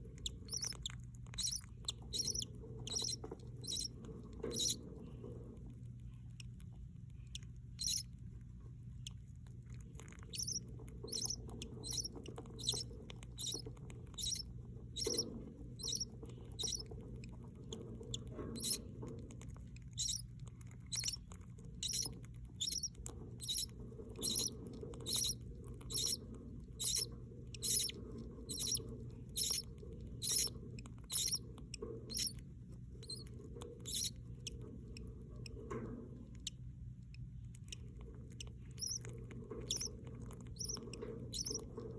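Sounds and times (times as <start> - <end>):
budgerigar chicks peeping: 0.0 - 4.9, 7.3 - 8.1, 10.2 - 17.0, 17.7 - 19.0, 19.9 - 20.3, 20.9 - 32.4, 33.0 - 35.6, 37.6 - 41.9
low steady hum: 0.0 - 41.9.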